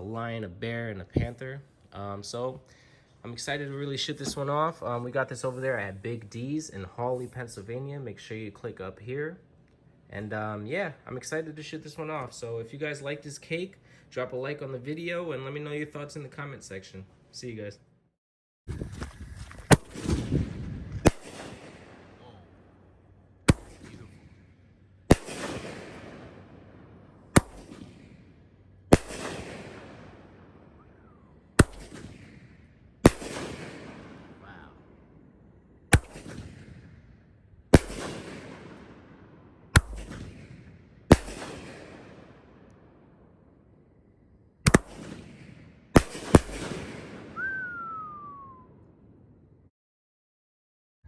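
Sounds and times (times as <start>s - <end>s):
firework launch and burst reports: 3.6s - 8.5s, 19.7s - 22.4s, 23.5s - 24.4s, 25.1s - 26.4s, 27.3s - 28.2s, 28.9s - 30.2s, 30.8s - 34.8s, 35.9s - 37.0s, 37.7s - 39.0s, 39.8s - 42.3s, 44.7s - 48.5s
falling whistle: 47.3s - 48.8s.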